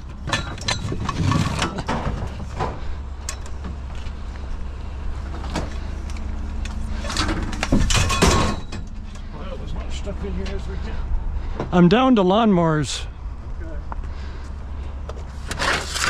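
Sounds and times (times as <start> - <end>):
scrap metal clattering: 0.1 - 3.6, 6.9 - 9.3, 15.4 - 16.0
vehicle engine idling: 2.1 - 16.0.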